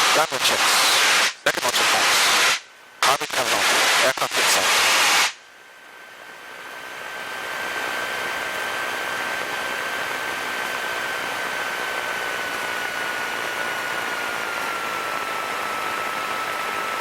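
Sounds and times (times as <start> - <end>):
thin high whine: 0.0 - 17.0
aircraft cabin engine noise: 5.9 - 17.0.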